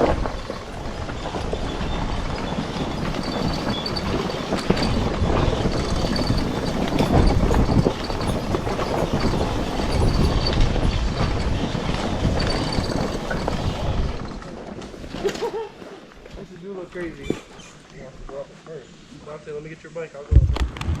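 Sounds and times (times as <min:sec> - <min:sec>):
off-road vehicle rumbling and rattling: 0:00.0 - 0:15.5.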